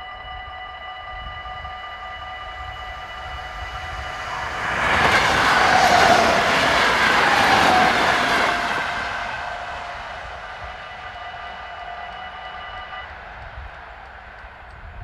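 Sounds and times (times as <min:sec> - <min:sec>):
level crossing warning bell: 0:00.0 - 0:14.4
train wheels rumbling on rails: 0:03.1 - 0:15.0.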